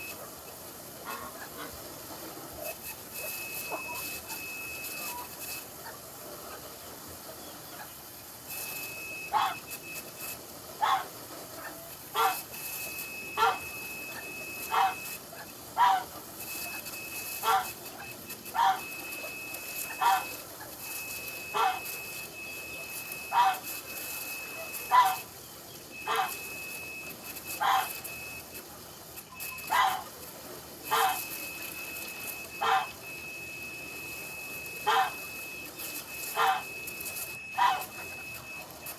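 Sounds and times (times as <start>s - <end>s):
dog barking: 1.1s - 1.8s, 9.3s - 9.6s, 10.8s - 12.5s, 13.4s - 18.9s, 19.8s - 20.8s, 21.5s - 22.0s, 23.3s - 23.8s, 24.6s - 25.3s, 26.1s - 26.5s, 27.6s - 28.0s, 29.6s - 30.1s, 30.9s - 31.3s, 32.6s - 33.0s, 34.8s - 35.3s, 36.4s - 36.7s, 37.6s - 38.1s.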